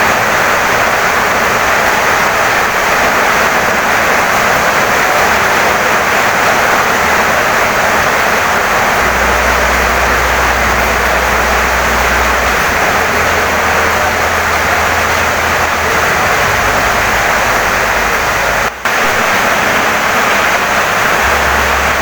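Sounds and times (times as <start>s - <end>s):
heavy rain on wooden house: 0.0s - 22.0s
low steady rumble: 8.9s - 19.2s.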